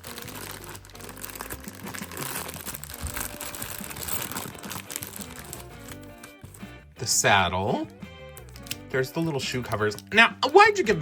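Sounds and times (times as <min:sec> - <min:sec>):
packaging crinkling: 0:00.0 - 0:06.6, 0:08.4 - 0:08.8.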